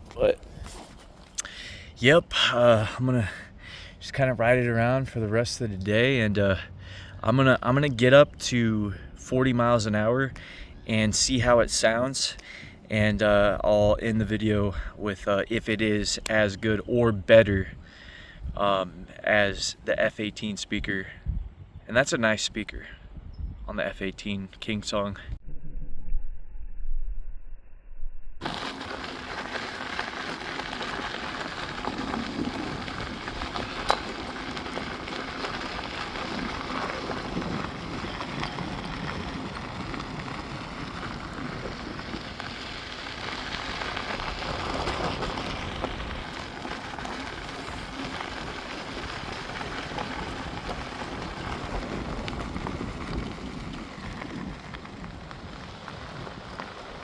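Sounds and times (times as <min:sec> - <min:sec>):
road noise: 0:00.0 - 0:08.4, 0:28.4 - 0:57.0
wind rushing on microphone: 0:17.4 - 0:19.1, 0:20.8 - 0:22.0, 0:22.7 - 0:24.4, 0:47.1 - 0:57.0.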